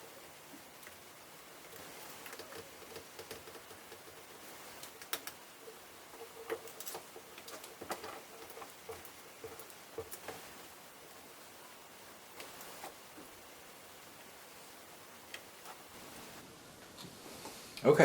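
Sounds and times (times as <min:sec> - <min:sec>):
hard parts clicking and tapping: 0:01.7 - 0:10.5.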